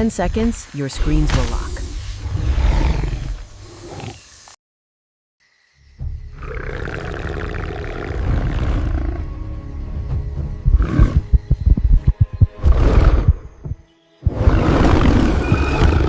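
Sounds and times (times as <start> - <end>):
music: 5.8 - 16.0
big cat growling: 6.4 - 9.3.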